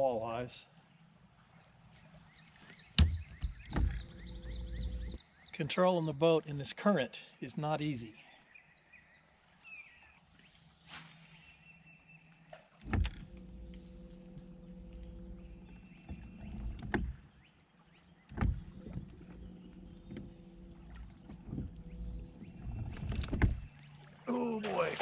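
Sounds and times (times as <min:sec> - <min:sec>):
faint bird chirps: 0:00.6 - 0:05.6
boat motor running: 0:03.0 - 0:05.2, 0:12.8 - 0:25.0.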